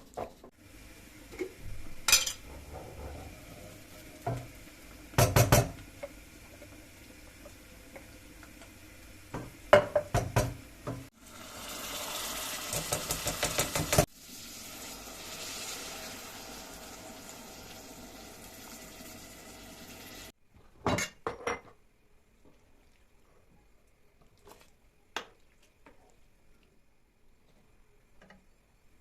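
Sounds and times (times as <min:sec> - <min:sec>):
water running: 0:00.8 - 0:20.4
dishes clinking: 0:02.1 - 0:03.3, 0:20.8 - 0:21.8.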